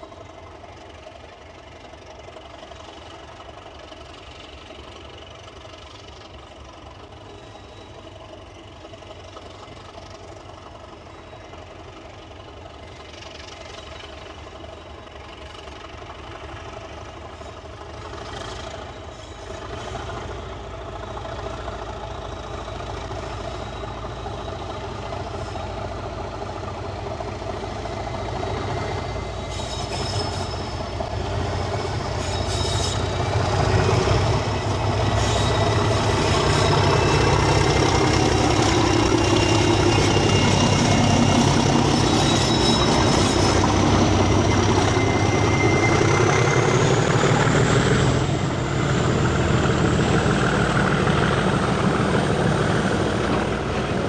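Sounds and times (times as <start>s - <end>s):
diesel locomotive engine rumble: 0.0s - 54.0s
high whining tones: 23.3s - 53.6s.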